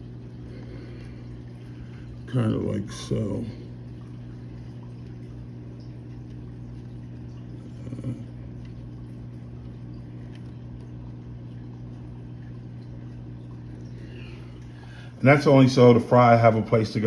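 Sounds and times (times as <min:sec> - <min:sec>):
aquarium equipment humming: 0:00.0 - 0:17.0.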